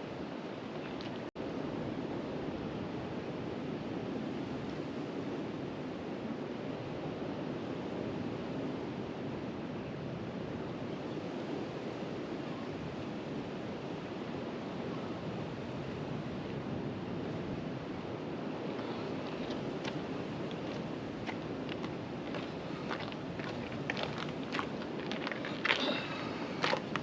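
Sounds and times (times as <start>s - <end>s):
sea washing on rocky shore: 18.6s - 27.0s.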